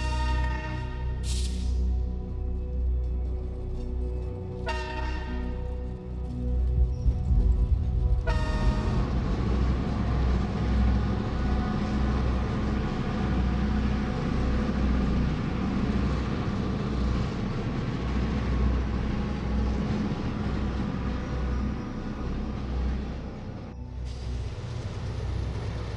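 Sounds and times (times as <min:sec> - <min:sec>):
train horn note: 0:00.0 - 0:01.9, 0:04.6 - 0:06.2, 0:08.0 - 0:09.9
diesel locomotive engine throbbing: 0:00.0 - 0:25.9
rail cars rumbling on track: 0:00.0 - 0:25.9.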